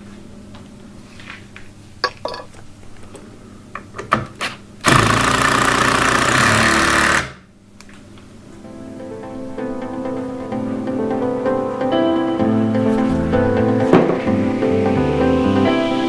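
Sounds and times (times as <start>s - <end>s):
power tool running: 4.9s - 7.4s.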